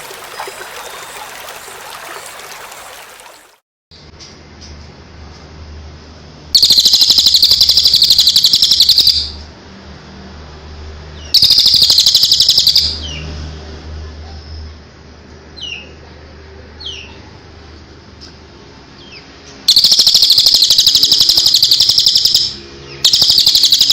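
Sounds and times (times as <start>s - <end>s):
songbird rattling trills: 6.6s - 9.3s, 19.7s - 23.9s.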